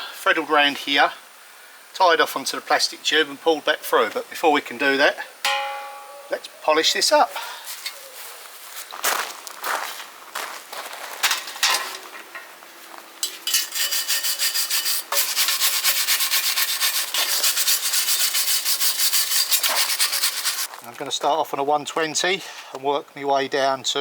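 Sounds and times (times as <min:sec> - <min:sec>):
sandpaper rubbing on metal: 0:13.3 - 0:20.7.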